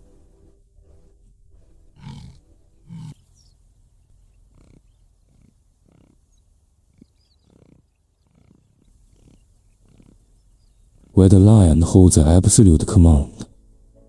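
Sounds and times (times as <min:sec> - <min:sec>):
big cat grunting: 0:01.9 - 0:03.3, 0:04.4 - 0:11.9.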